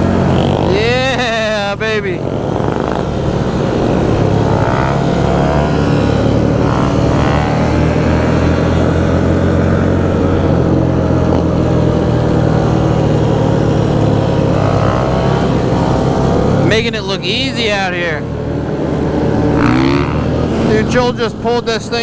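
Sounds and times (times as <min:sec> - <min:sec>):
wind noise: 0:00.0 - 0:16.7
motorcycle engine running: 0:00.0 - 0:22.0.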